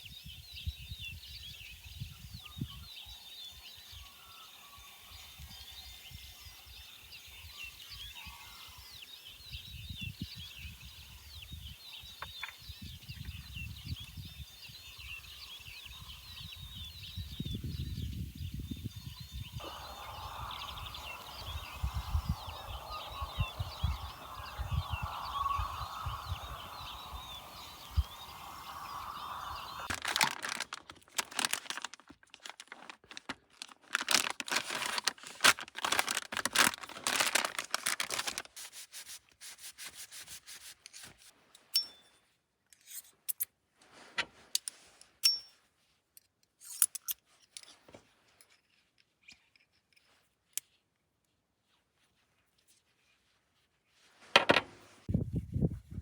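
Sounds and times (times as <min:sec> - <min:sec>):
birds chirping: 0:00.3 - 0:31.8
wind buffeting microphone: 0:09.4 - 0:30.8, 0:55.1 - 0:56.0
packaging crinkling and rustling: 0:29.8 - 0:38.8.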